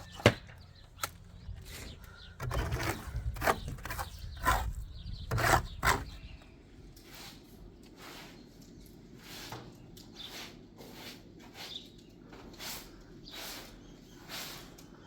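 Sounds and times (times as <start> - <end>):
hand tools scraping wet cement: 1.7 - 6.3, 9.2 - 15.0.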